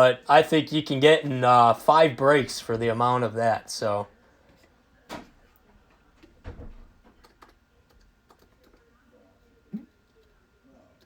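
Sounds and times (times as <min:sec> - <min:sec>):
faint clicks and taps: 0:04.4 - 0:08.9.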